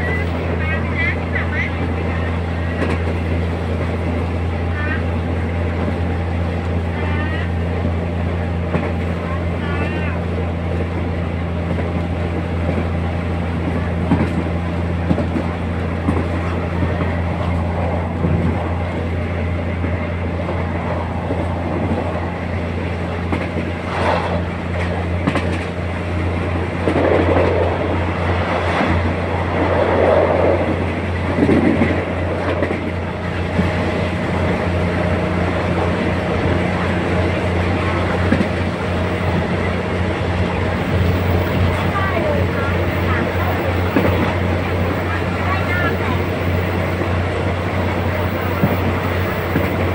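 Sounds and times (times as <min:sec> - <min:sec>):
train running: 0:00.0 - 0:49.9
wheels rumbling on rail: 0:00.0 - 0:49.9.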